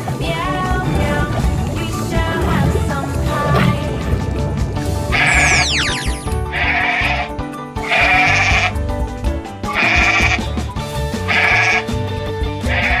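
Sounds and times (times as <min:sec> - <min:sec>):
background music: 0:00.0 - 0:13.0
falling whistle effect: 0:05.2 - 0:06.4
farm animal bleating: 0:06.6 - 0:07.3, 0:07.9 - 0:08.7, 0:09.8 - 0:10.4, 0:11.3 - 0:11.9, 0:12.7 - 0:13.0.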